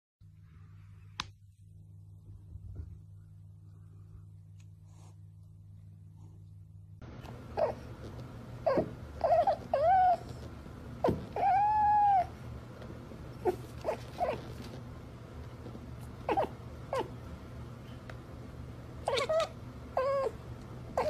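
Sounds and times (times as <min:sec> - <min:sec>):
low steady hum: 0:00.2 - 0:21.0
cat meowing: 0:11.4 - 0:12.4, 0:19.0 - 0:20.4.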